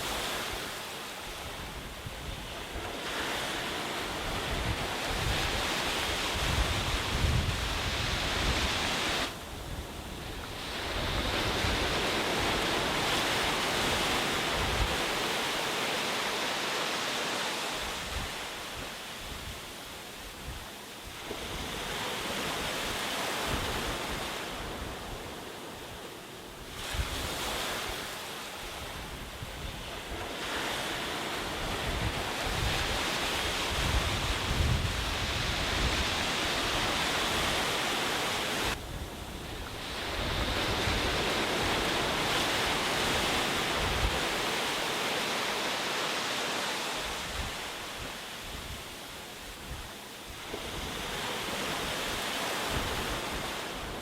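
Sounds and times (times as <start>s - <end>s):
sea surf breaking on beach: 0.0s - 54.0s
wind buffeting microphone: 4.0s - 15.2s, 28.7s - 44.6s.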